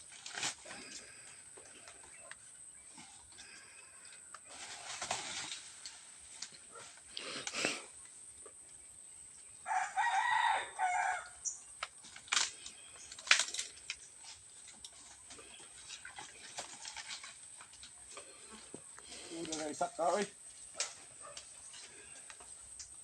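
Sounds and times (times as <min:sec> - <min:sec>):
rooster crowing: 0:09.6 - 0:11.5.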